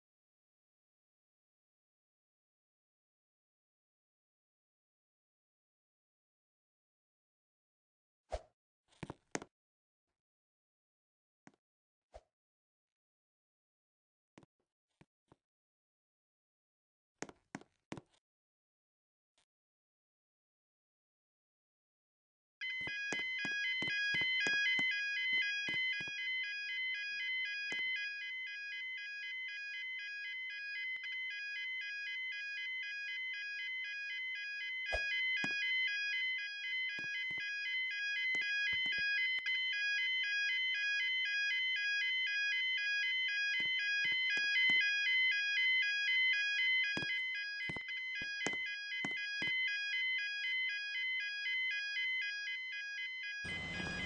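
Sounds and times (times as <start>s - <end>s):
level crossing alarm two-tone: 22.6s - 54.0s.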